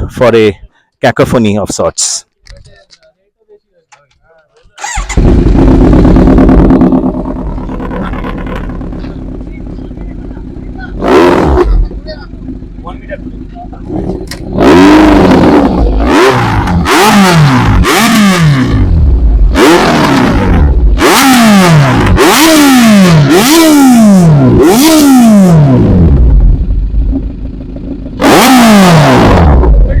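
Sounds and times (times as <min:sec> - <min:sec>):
motorcycle engine idling: 0:04.8 - 0:17.8, 0:26.0 - 0:28.3
motorcycle engine revving: 0:04.8 - 0:30.0.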